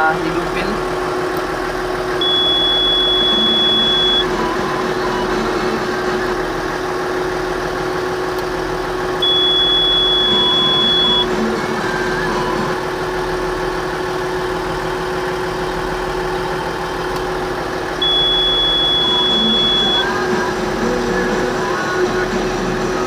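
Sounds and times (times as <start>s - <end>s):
excavator diesel engine idling: 0.0s - 23.0s
high-pitched electronic beep: 2.2s - 5.6s, 9.2s - 12.8s, 18.0s - 20.4s.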